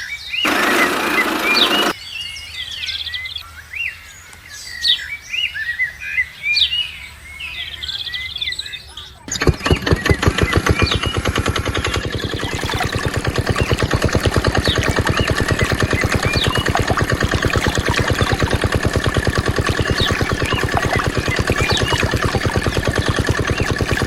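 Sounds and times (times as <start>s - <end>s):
small diesel engine running: 0.5s - 2.0s, 9.3s - 24.0s
small birds chirping: 7.5s - 24.0s.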